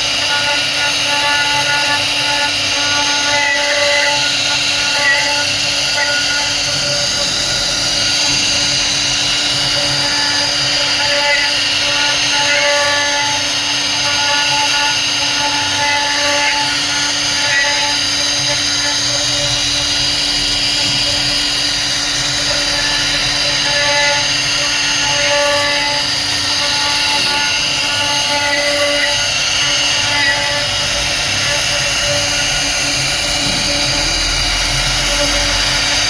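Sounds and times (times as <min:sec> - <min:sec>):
router spindle whining carving wood: 0:00.0 - 0:36.0.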